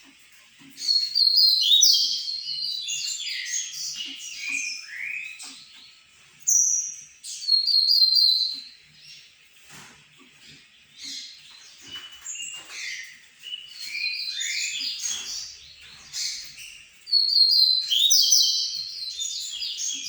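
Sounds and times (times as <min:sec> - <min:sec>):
bird singing high whistled notes: 0:00.9 - 0:05.4, 0:06.5 - 0:08.5, 0:11.9 - 0:15.2, 0:17.1 - 0:20.0.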